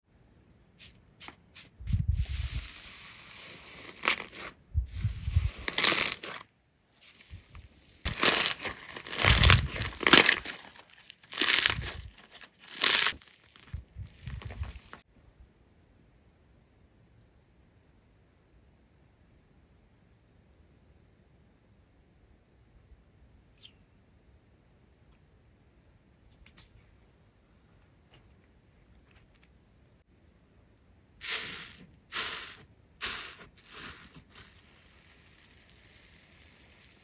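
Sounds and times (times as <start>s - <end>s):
slime squeezed crackling: 5.7s - 6.4s, 8.1s - 15.0s.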